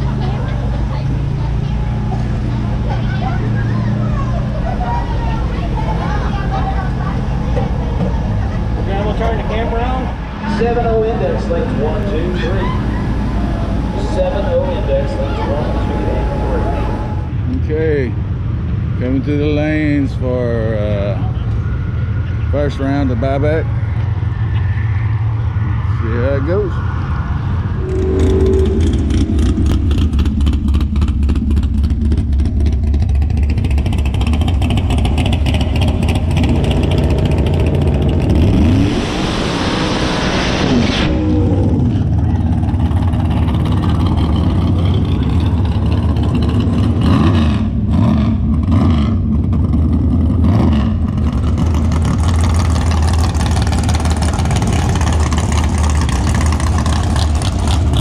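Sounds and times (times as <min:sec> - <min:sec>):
car engine idling roughly: 0:29.9 - 0:38.3, 0:51.2 - 0:58.0.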